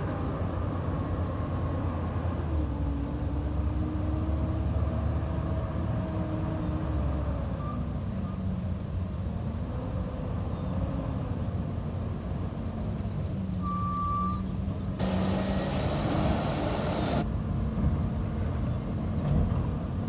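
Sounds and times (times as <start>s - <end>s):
air hiss: 15.0s - 17.2s
garbage truck engine running: 15.0s - 17.2s.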